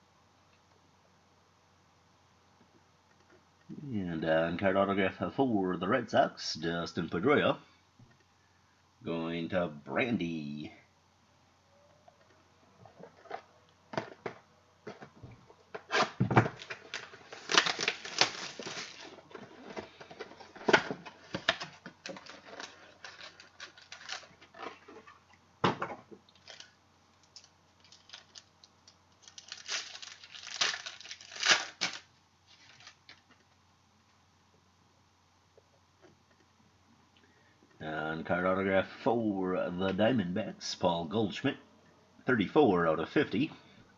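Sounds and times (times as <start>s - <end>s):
wrappers crinkling and tearing: 15.9s - 25.2s, 26.3s - 33.2s.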